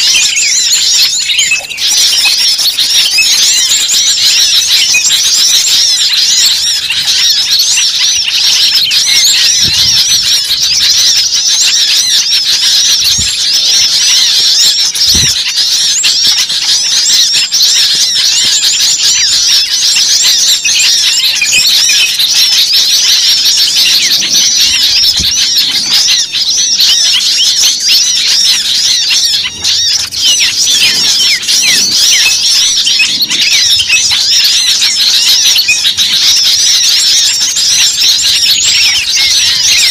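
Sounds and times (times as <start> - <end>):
songbirds chirping and chattering: 0.0 - 39.9.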